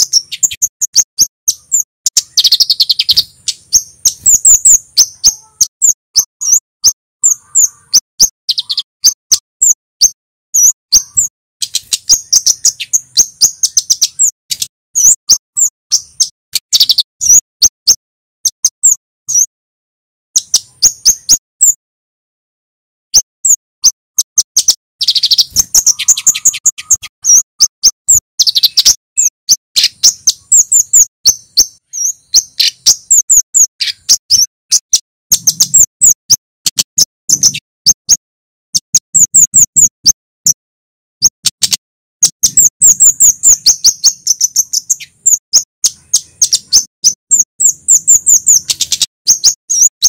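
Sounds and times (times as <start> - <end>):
bird chirping sharp high clicks: 0.0 - 19.5, 20.4 - 21.8, 23.1 - 40.6, 41.2 - 50.0.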